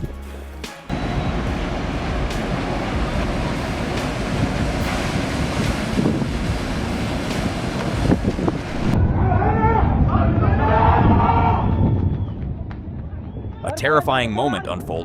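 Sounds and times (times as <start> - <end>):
waves at sea: 0.9 - 9.0
wind buffeting the microphone: 0.9 - 15.0.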